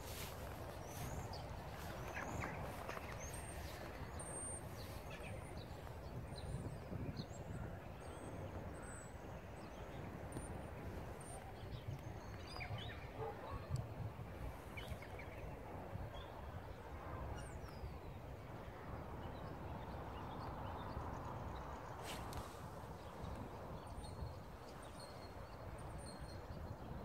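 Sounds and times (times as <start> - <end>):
small birds chirping: 0.0 - 16.5.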